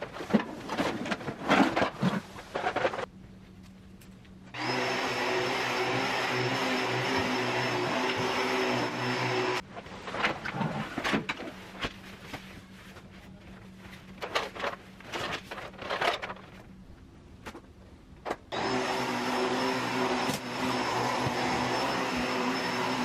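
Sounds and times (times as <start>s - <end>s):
knocks and clatter of handling: 0.0s - 3.1s, 10.0s - 16.8s
vacuum cleaner motor: 4.6s - 9.6s, 18.5s - 23.0s.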